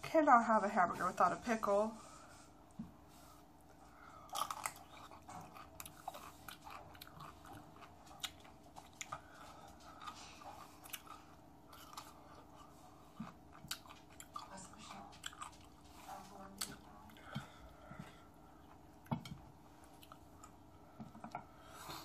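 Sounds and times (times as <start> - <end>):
wet chewing: 3.6 - 22.0
pickle crunching: 4.2 - 15.8.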